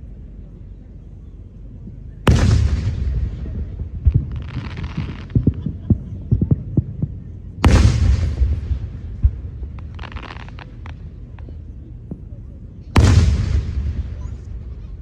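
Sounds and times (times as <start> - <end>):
firework pops and crackle: 2.3 - 6.8, 7.6 - 12.3
firework booms: 2.3 - 12.3, 12.9 - 15.0.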